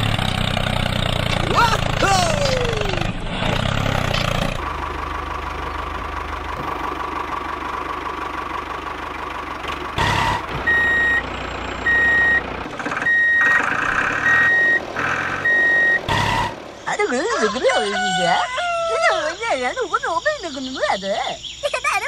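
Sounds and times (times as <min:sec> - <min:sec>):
vehicle engine running: 0:00.0 - 0:21.7
reversing alarm beeping: 0:10.0 - 0:13.6, 0:14.2 - 0:16.6.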